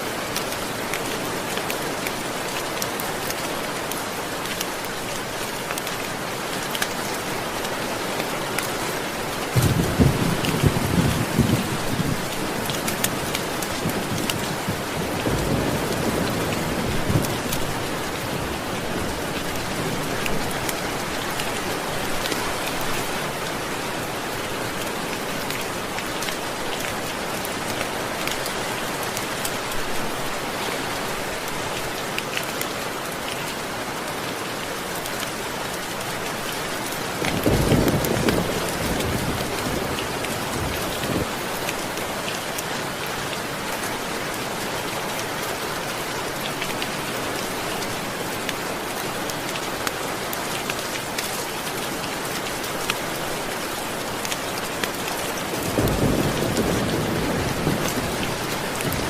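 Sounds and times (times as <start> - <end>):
steady rain falling: 0.0 - 59.0
thunder rumbling: 9.6 - 12.3, 55.6 - 59.0.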